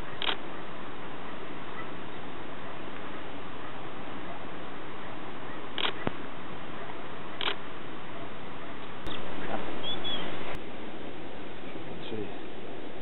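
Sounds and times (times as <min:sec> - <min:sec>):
camera handling noise: 0:05.8 - 0:06.2, 0:07.4 - 0:07.6
harsh bird calls: 0:09.0 - 0:10.5.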